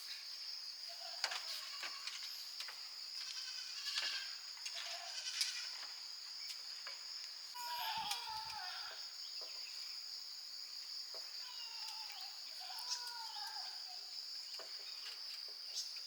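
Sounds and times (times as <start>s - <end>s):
crickets chirring: 0.0s - 16.0s
goat bleating: 7.6s - 9.0s.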